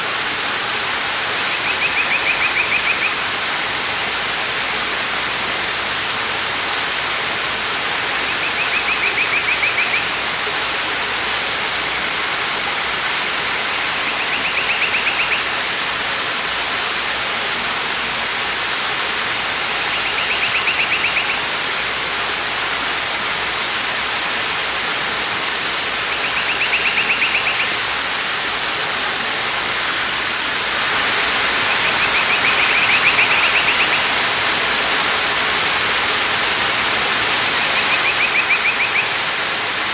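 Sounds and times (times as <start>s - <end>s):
waterfall rushing: 0.0s - 39.9s
high bird trill: 19.8s - 21.4s, 26.2s - 27.8s.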